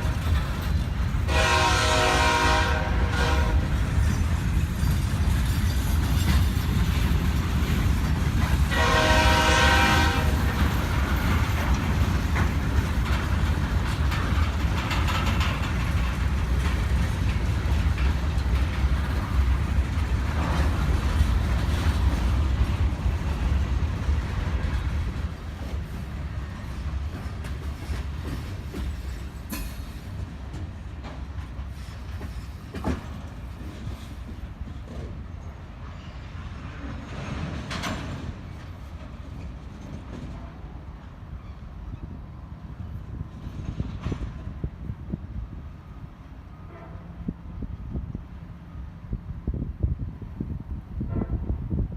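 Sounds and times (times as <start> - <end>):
train wheel clatter: 0.0 - 45.2
freight train rumbling past: 0.0 - 51.9
train horn blast: 1.3 - 3.8, 8.7 - 10.4, 46.6 - 47.3, 51.0 - 51.6.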